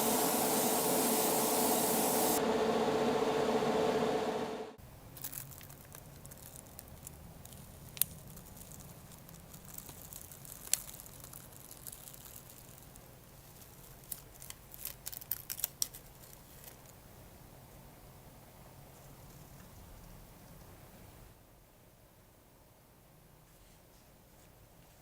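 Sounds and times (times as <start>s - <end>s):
spray hiss: 0.0s - 2.4s.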